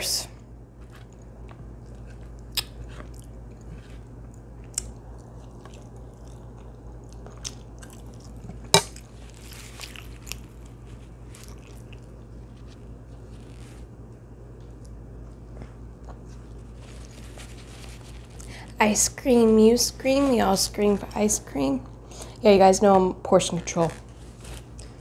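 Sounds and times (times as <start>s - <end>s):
close chewing with wet mouth clicks: 1.2s - 12.4s.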